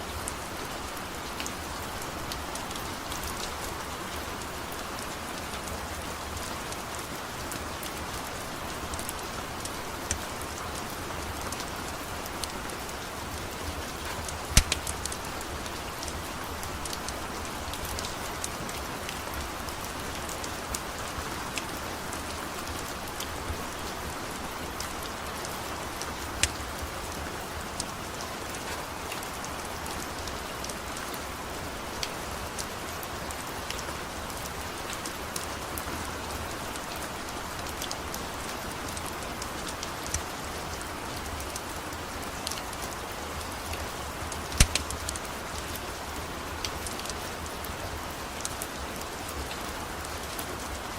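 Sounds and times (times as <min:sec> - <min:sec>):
steady rain falling: 0:00.0 - 0:50.9
sharp clicks: 0:14.5 - 0:15.0, 0:44.6 - 0:45.1.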